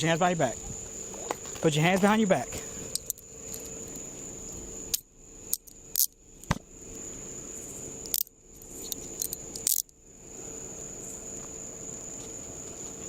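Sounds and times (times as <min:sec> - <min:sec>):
crickets chirping: 0:00.0 - 0:13.0
handcuffs clicking: 0:02.9 - 0:03.7, 0:04.9 - 0:06.1, 0:08.0 - 0:09.9.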